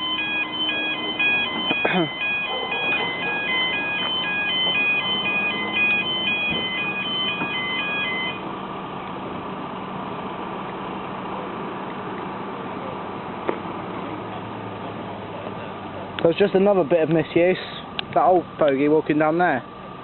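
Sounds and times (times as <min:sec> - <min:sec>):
level crossing warning alarm: 0:00.0 - 0:08.5
idling traffic hum: 0:00.0 - 0:20.0.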